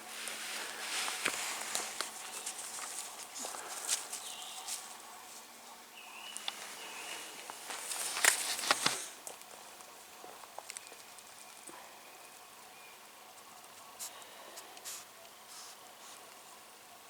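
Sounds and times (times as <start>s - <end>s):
footsteps on leaf litter: 0.0s - 5.5s, 6.2s - 9.2s.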